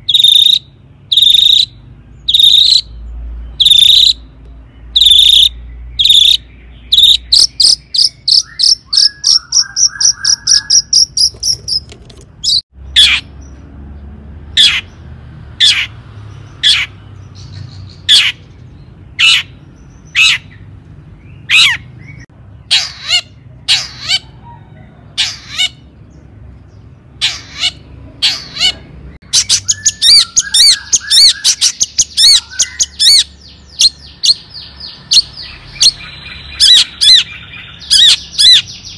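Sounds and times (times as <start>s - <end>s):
shrike calling: 0.0s - 3.0s, 3.6s - 4.2s, 4.9s - 13.3s, 27.2s - 38.8s.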